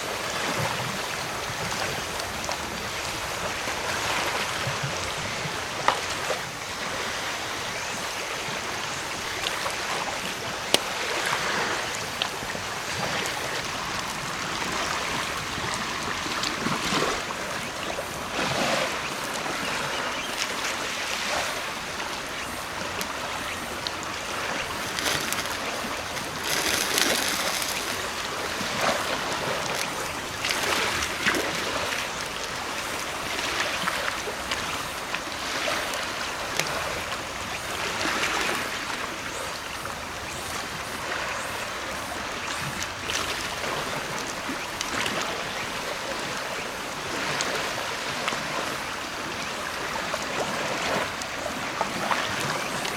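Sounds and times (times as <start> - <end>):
sea waves washing on shore: 0.0 - 52.9.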